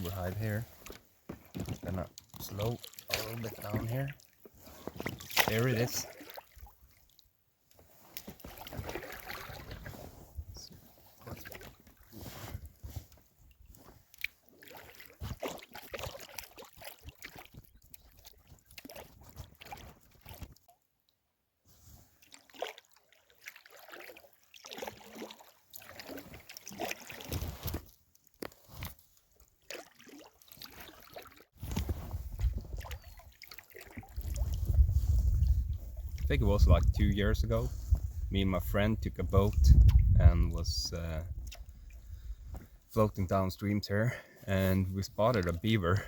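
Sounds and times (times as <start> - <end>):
paddle splashing in water: 0.0 - 20.7, 21.8 - 36.2
wind rumble on microphone: 31.7 - 33.0, 34.2 - 42.6.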